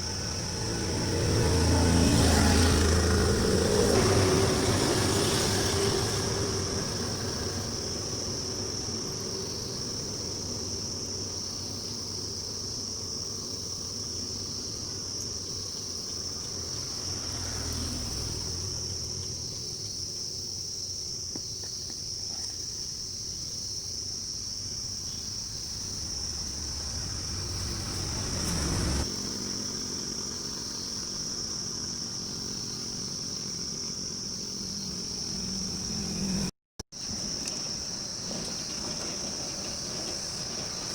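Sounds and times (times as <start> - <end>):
insects buzzing: 0.0 - 40.9
low background rumble: 24.5 - 31.9.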